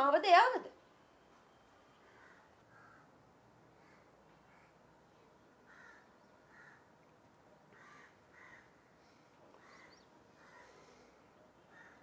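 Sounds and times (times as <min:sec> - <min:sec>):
faint bird calls: 0:01.8 - 0:04.8, 0:05.7 - 0:06.9, 0:07.7 - 0:12.0.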